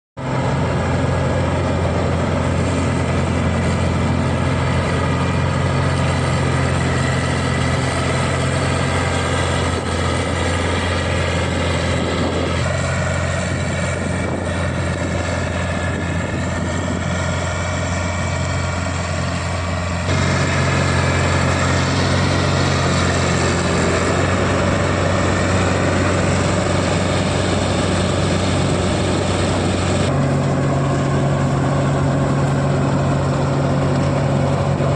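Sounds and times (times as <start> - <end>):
diesel engine droning under load: 0.2 - 34.9.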